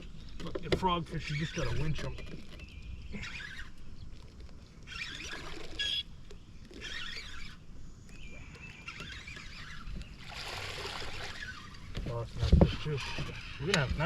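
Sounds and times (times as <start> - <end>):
fish thrashing and splashing water: 4.3 - 5.9, 9.0 - 11.9.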